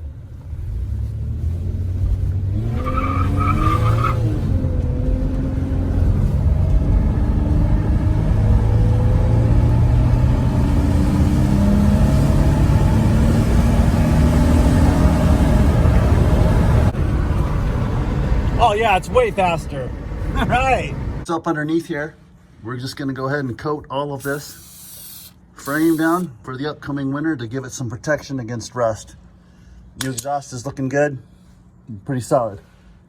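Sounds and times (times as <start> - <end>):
car engine accelerating: 0.4 - 18.6
high squeal: 24.2 - 26.3.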